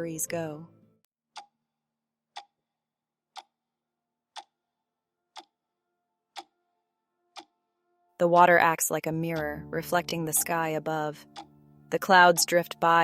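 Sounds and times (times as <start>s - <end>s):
clock-like ticking: 3.3s - 3.6s, 4.3s - 4.5s, 5.3s - 5.5s, 8.4s - 13.0s.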